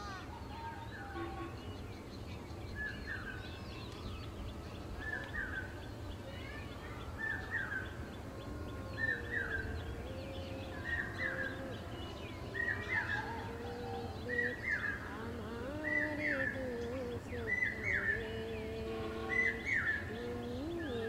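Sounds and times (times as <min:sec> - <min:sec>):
birds chirping faintly: 0:00.0 - 0:21.0
low wavering bird call: 0:07.2 - 0:21.0.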